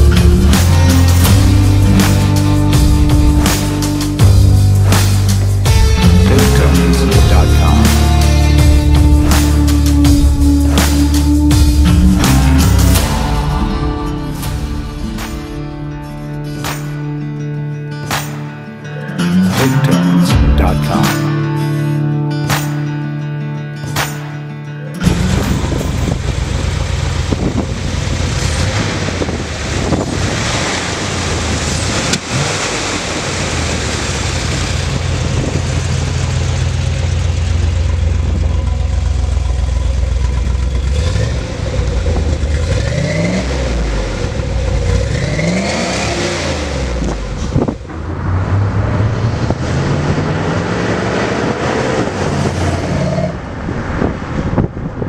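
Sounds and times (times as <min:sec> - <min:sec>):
car engine idling and revving: 0:00.0 - 0:55.0
car accelerating away: 0:25.0 - 0:54.8.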